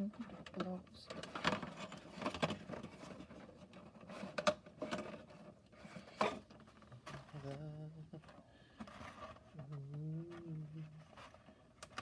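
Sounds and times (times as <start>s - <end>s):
plastic and cardboard parts clicking: 0.2s - 7.6s, 8.2s - 12.0s
low humming voice: 7.1s - 8.4s, 9.6s - 11.1s.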